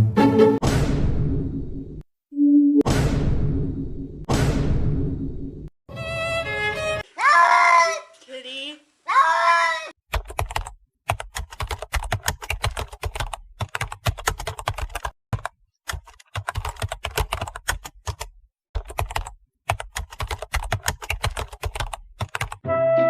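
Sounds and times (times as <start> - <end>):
keyboard typing clicks: 10.1 - 22.6.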